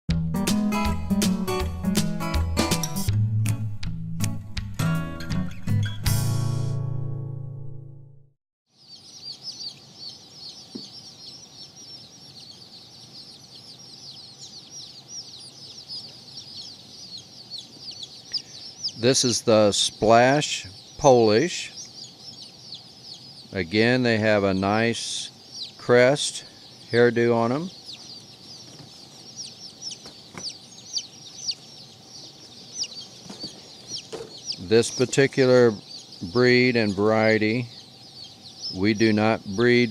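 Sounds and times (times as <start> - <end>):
chicks peeping: 8.7 - 39.9.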